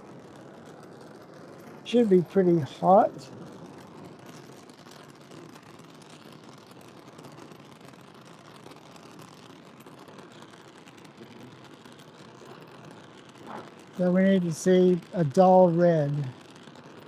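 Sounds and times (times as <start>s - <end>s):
torch burning with faint hiss: 0.0s - 17.0s.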